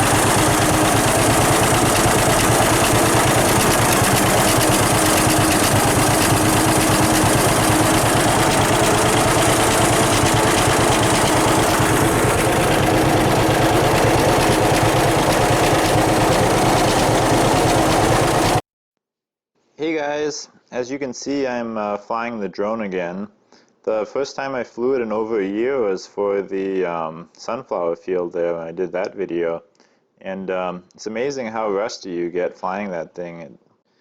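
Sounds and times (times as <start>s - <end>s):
baler pulsing: 0.0s - 18.6s
tractor diesel engine under load: 0.0s - 18.6s.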